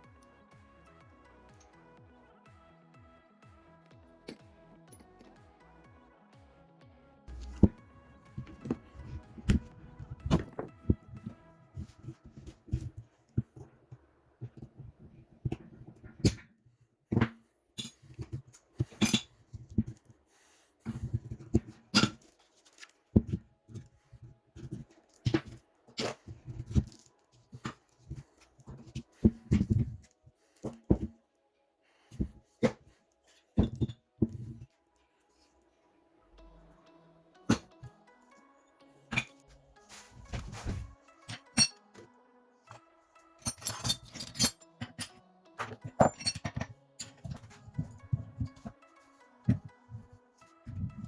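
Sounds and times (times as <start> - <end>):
quiet background music: 0.0 - 51.0
tools and metal parts clattering: 7.3 - 13.6, 15.4 - 16.5, 17.1 - 20.1, 20.9 - 31.1, 32.1 - 34.7, 39.1 - 41.8, 43.4 - 50.0
small metal parts clinking: 41.3 - 41.8, 43.4 - 48.8.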